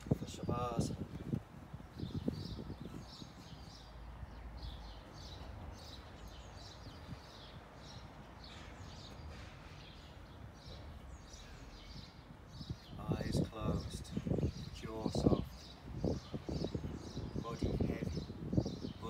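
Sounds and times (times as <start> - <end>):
small bird chirping: 1.9 - 13.2.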